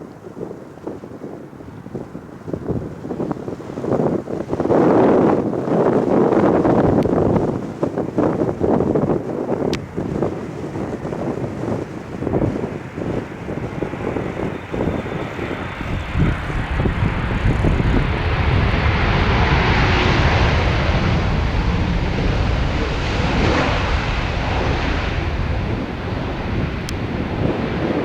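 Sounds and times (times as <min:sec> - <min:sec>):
wind buffeting microphone: 0:00.0 - 0:28.0
jet engines passing by: 0:00.1 - 0:28.0.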